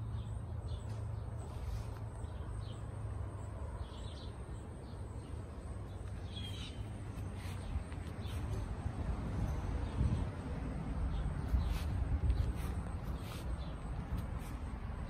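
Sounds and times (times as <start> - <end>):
wind rumble on microphone: 7.6 - 15.0.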